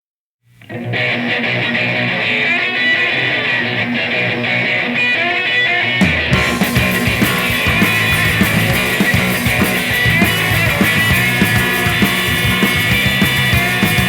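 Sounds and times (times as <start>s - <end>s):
bass guitar: 0.6s - 14.0s
electric guitar: 0.6s - 14.0s
drums: 5.9s - 14.0s.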